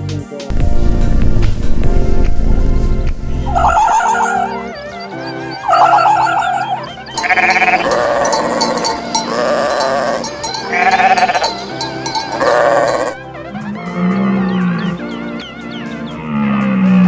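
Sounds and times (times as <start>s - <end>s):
background music: 0.0s - 17.0s
sheep bleating: 5.4s - 13.3s.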